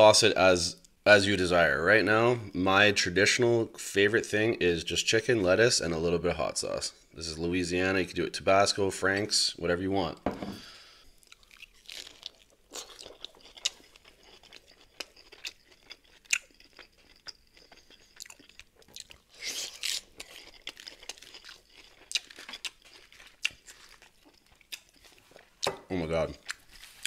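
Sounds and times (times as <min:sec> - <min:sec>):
lettuce crunching while chewing: 0:11.2 - 0:27.0.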